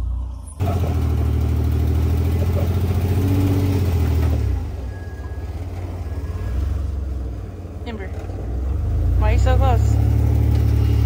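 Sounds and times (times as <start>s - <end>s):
engine revving hard: 0.6s - 4.9s, 8.5s - 11.0s.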